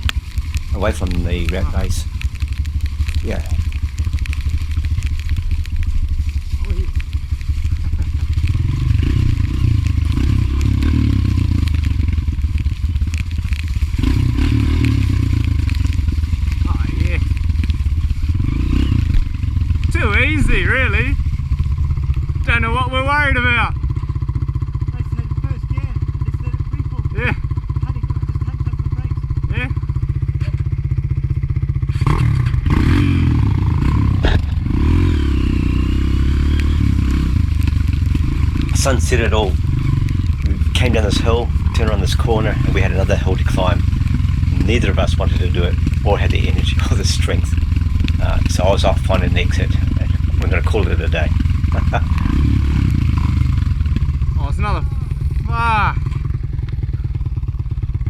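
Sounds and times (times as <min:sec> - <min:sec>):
trail bike engine running: 0:00.0 - 0:58.0.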